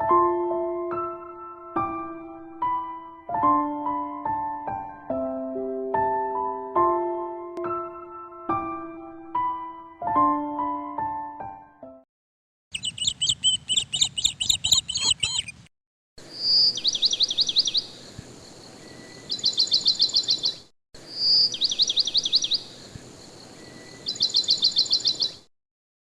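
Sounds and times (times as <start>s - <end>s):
songbird singing: 12.7s - 25.5s.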